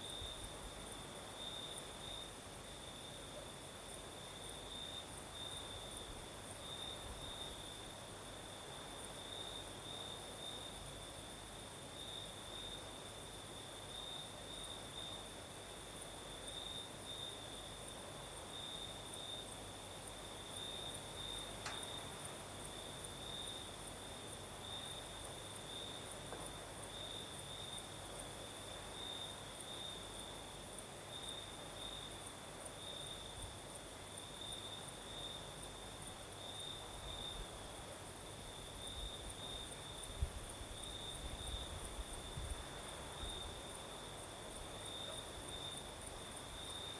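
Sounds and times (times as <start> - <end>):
crickets chirping: 0.0 - 46.9
high insect hiss: 0.0 - 46.9
wind rumble on microphone: 40.0 - 43.7.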